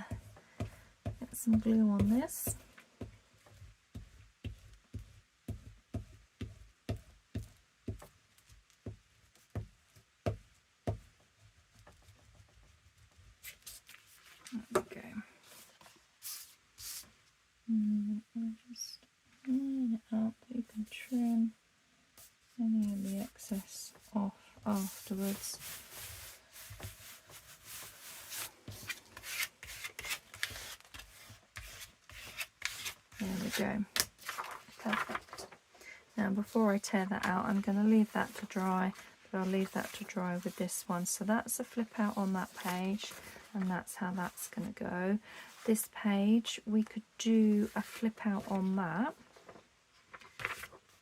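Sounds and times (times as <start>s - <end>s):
scratchy paper rubbing: 15.5s - 17.1s, 24.7s - 35.3s, 37.5s - 44.8s.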